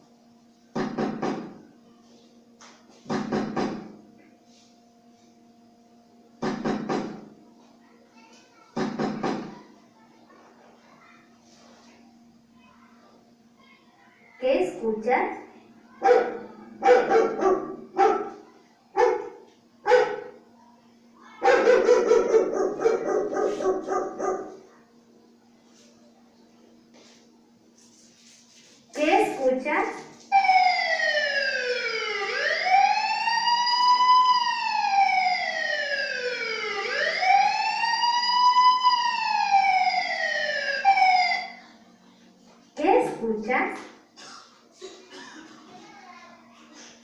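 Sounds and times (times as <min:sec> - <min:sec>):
knocking on a door: 0:00.8 - 0:01.6, 0:03.1 - 0:03.9, 0:06.4 - 0:07.3, 0:08.8 - 0:09.6
dog barking: 0:16.0 - 0:20.4, 0:21.4 - 0:24.7.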